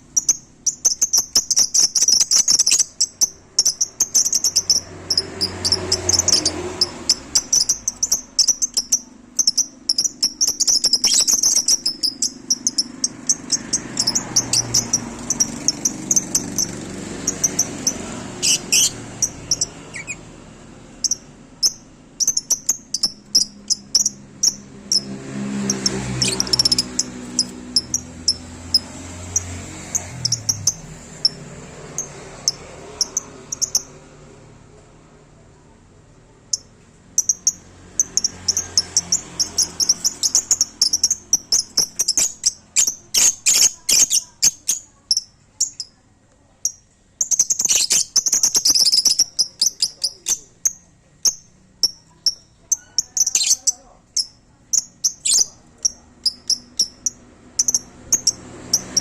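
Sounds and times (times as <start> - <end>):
lovebirds chirping: 0.0 - 34.4, 36.2 - 59.0.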